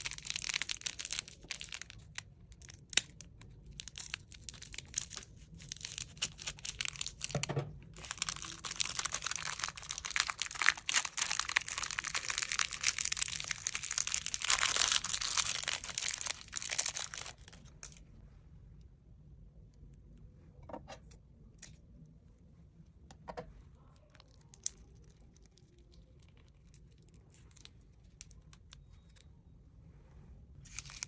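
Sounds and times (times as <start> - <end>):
slime crackling and popping: 0.0 - 7.4, 8.0 - 17.7.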